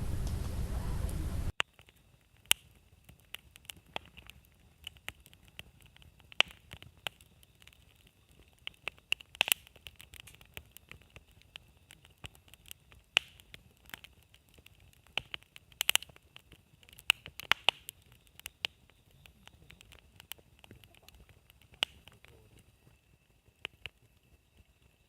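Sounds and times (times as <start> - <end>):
campfire crackling and popping: 0.0 - 25.0
faint steady high hiss: 0.0 - 25.0.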